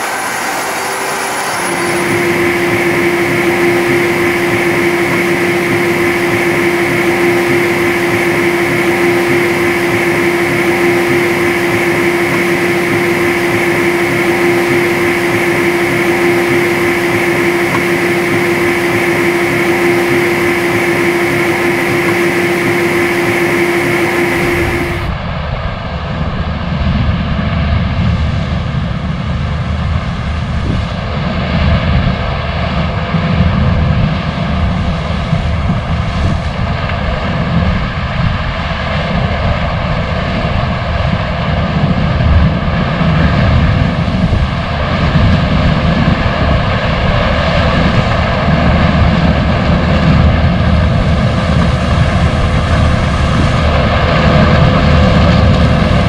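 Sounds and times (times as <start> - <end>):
heavy machinery rumble: 0.0 - 25.1
harvesting machinery whine: 0.0 - 25.2.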